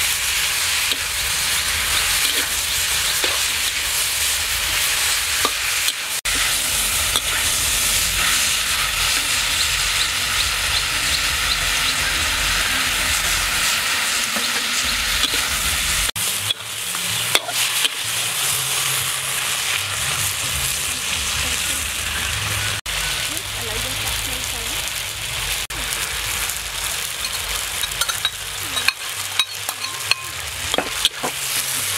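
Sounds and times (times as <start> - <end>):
meat sizzling in a wok: 0.0 - 31.9
metal spatula stirring: 27.2 - 31.9.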